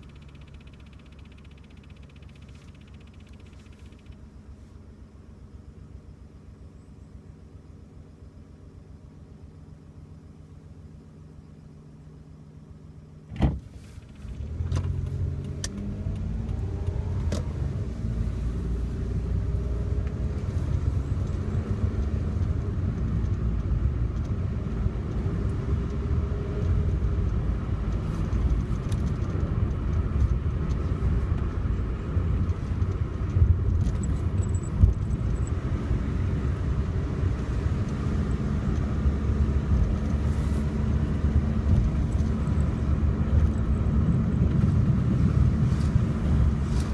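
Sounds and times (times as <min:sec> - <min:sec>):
car engine and tyre rumble: 0:00.0 - 0:46.9
click: 0:22.0 - 0:24.4.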